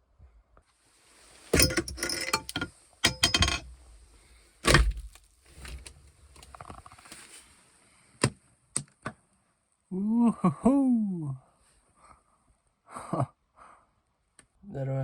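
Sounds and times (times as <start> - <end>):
hard objects clattering and rattling: 1.4 - 3.8
rustling and small ticks: 5.1 - 7.5.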